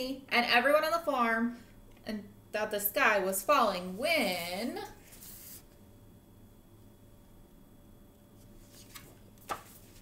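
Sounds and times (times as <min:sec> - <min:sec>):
faint steady hum: 0:00.0 - 0:10.0
paper page rustling: 0:05.0 - 0:05.7, 0:08.4 - 0:10.0.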